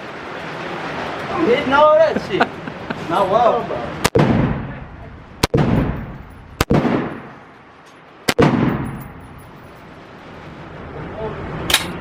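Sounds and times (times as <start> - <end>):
gunshots with echo: 5.4 - 7.4, 8.3 - 9.2.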